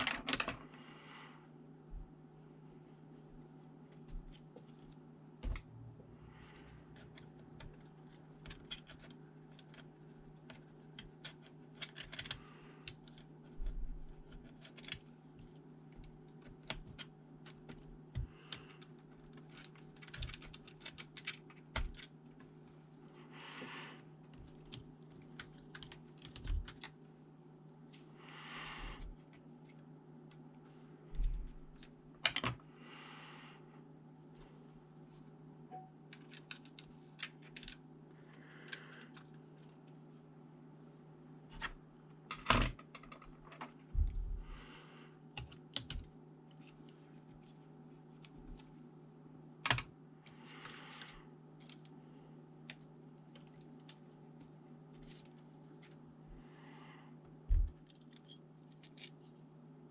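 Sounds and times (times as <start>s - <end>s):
steady low hum: 0.0s - 59.9s
laptop parts clicking and tapping: 6.9s - 13.6s, 14.2s - 22.5s, 24.3s - 27.0s, 45.4s - 46.1s, 49.6s - 49.9s.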